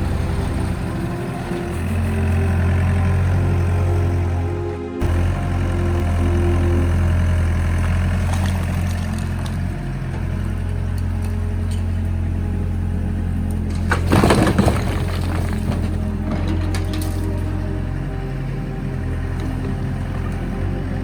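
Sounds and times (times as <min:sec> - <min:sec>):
excavator diesel engine running: 0:00.0 - 0:21.0
loud clatter: 0:05.0 - 0:18.4.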